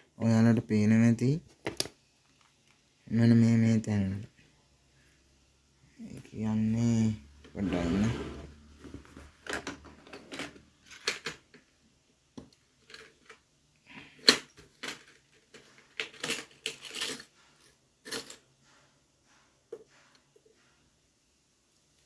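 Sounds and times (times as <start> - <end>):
plastic parts clicking and clattering: 8.9 - 11.7, 12.4 - 13.5, 14.2 - 17.4.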